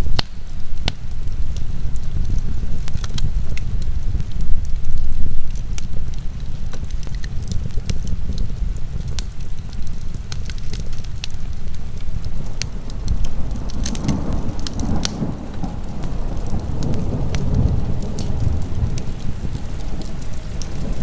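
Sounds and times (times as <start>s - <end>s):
heavy rain: 0.0s - 21.0s
wood fire crackling: 0.0s - 21.0s
thunder rolling: 12.3s - 21.0s.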